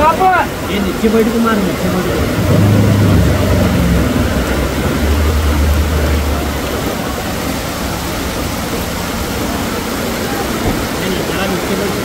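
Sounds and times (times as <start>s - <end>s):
heavy rain pouring: 0.0s - 12.0s
low hum: 2.1s - 8.4s.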